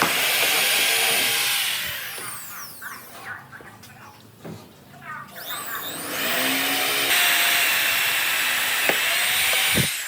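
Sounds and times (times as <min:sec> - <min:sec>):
power tool hissing and whining: 0:00.0 - 0:02.8, 0:05.4 - 0:10.0.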